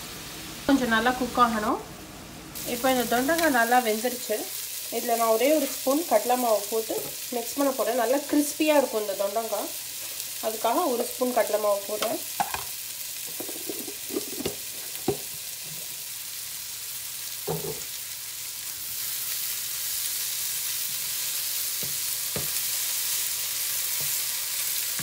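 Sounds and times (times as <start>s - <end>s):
vegetables sizzling in hot oil: 0.0s - 25.0s
wooden spatula knocking on pan: 12.4s - 12.7s, 13.4s - 15.3s.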